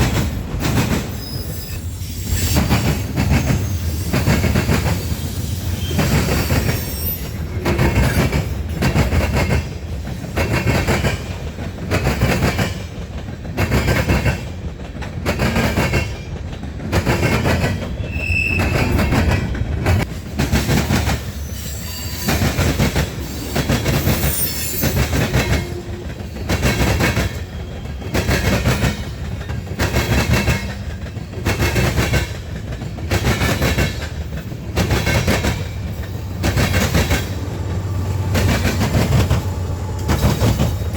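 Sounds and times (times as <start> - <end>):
train wheels clattering over rail joints: 0.0 - 40.9
high squeal: 1.2 - 2.7, 18.0 - 19.1, 21.4 - 22.4, 23.3 - 25.2.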